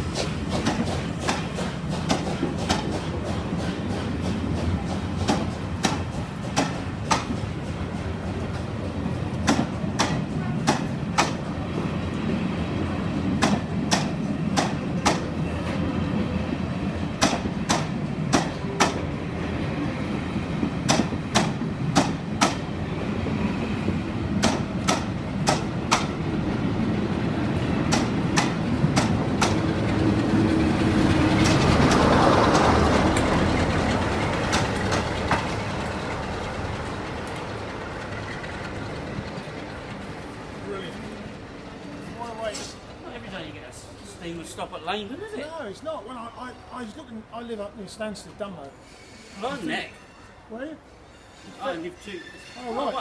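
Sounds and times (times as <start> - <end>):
train wheels clicking over rail joints: 0.0 - 43.4
train rumble: 0.0 - 53.0
train brake hiss: 48.6 - 53.0.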